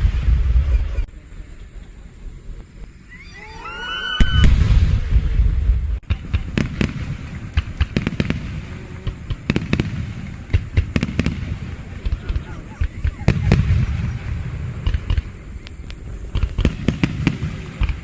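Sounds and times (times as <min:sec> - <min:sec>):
firework burst with deep rumble: 0:00.0 - 0:02.8, 0:04.2 - 0:18.0
rising firework whistles: 0:02.2 - 0:18.0
firework pops and cracks: 0:04.2 - 0:18.0.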